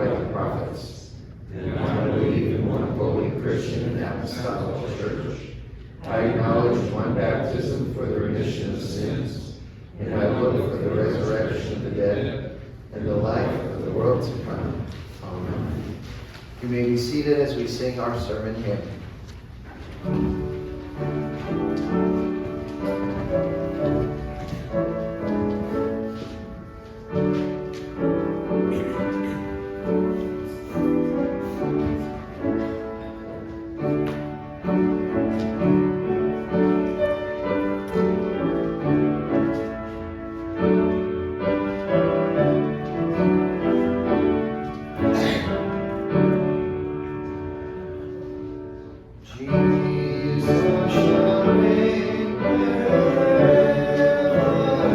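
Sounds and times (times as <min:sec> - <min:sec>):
piano chords: 0:00.0 - 0:54.9
congregation singing: 0:49.3 - 0:54.9.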